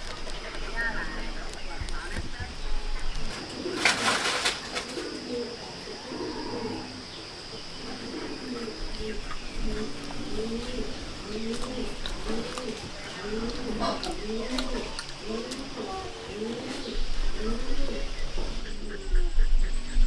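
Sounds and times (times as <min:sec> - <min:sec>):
pigeons cooing: 0:02.8 - 0:20.0
rustling clatter: 0:03.3 - 0:05.1.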